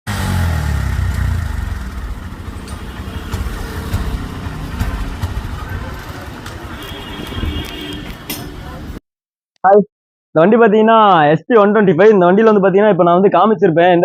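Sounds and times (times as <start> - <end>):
motorcycle engine misfiring: 0.2 - 8.5.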